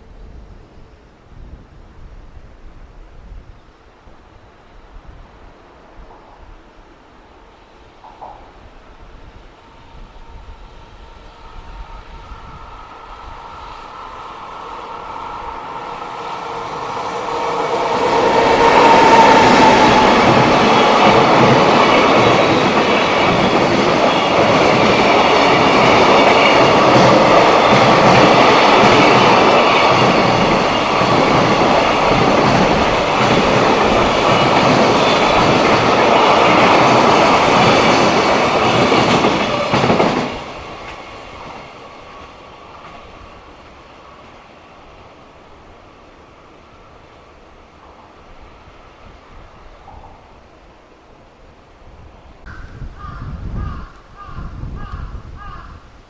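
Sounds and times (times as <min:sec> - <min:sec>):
freight train rumble: 0:00.0 - 0:55.5
train wheels clattering on rails: 0:08.0 - 0:08.6, 0:15.6 - 0:45.0.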